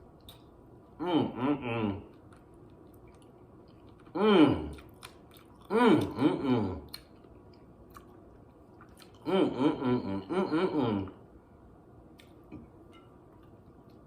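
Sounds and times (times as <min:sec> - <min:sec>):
wordless voiced hum: 0:00.9 - 0:02.4, 0:04.0 - 0:05.0, 0:05.6 - 0:07.2, 0:09.0 - 0:11.4
person chewing: 0:01.9 - 0:11.2.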